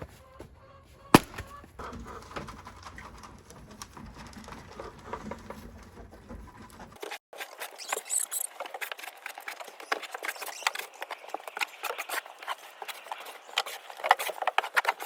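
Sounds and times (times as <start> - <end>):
chickens clucking: 0.0 - 6.9.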